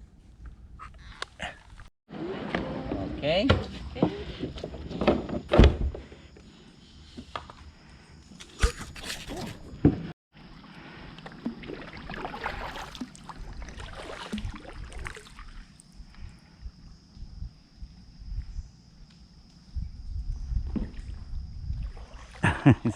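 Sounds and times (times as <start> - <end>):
paddle strokes in water: 10.4 - 15.8, 21.8 - 22.6.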